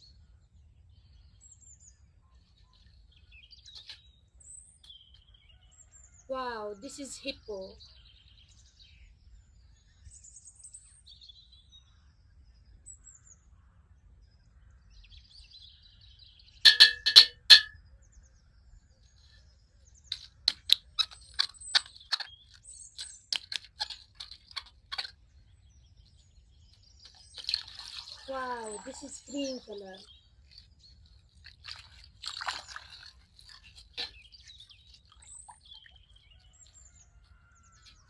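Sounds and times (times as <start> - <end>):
hard objects clicking and tapping: 16.7 - 17.8.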